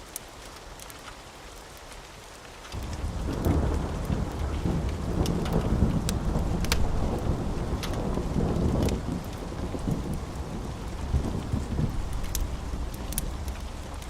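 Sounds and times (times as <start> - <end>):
wood fire crackling: 0.0 - 14.0
loud low rumble: 2.8 - 14.0.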